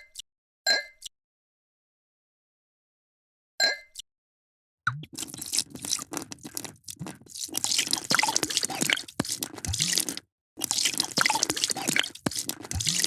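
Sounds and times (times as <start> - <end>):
drink pouring into glass: 5.0 - 13.0.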